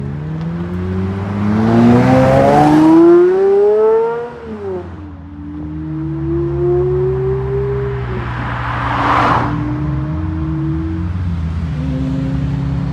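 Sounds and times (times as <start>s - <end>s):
sports car engine accelerating: 0.0s - 12.9s.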